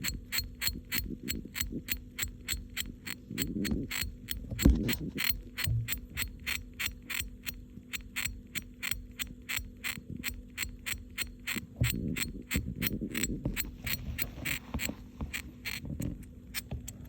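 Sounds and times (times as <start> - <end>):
hamster gnawing: 0.0 - 17.0.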